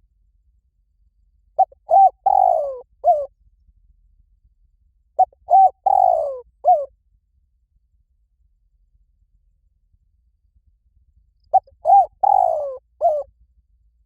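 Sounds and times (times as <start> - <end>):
dove cooing: 1.6 - 3.3, 5.2 - 6.9, 11.5 - 13.3.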